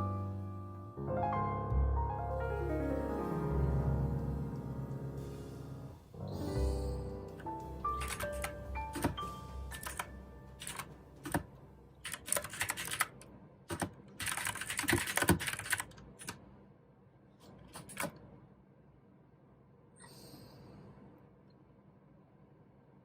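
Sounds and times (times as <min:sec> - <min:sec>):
mechanical keyboard typing: 0:08.0 - 0:16.4.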